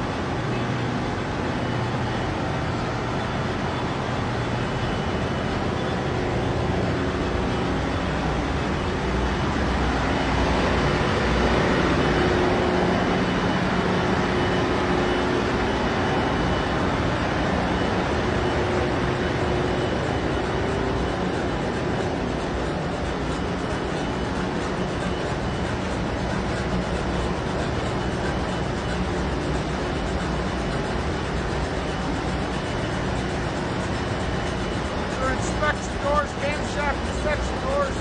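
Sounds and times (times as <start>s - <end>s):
engine room machinery din: 0.0s - 38.0s
faint steady hum tones: 0.0s - 38.0s.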